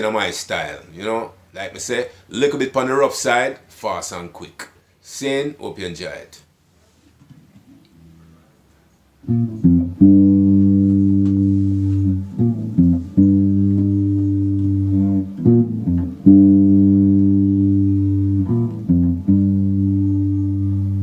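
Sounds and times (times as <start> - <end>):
reggae guitar and bass: 9.2 - 21.0.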